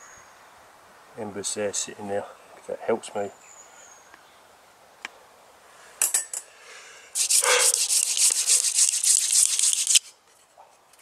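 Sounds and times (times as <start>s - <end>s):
wooden spindle scraping in socket: 7.2s - 10.0s.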